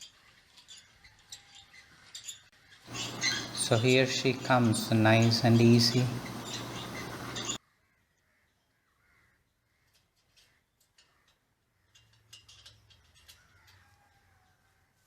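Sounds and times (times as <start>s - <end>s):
faint bird calls: 2.9s - 7.6s.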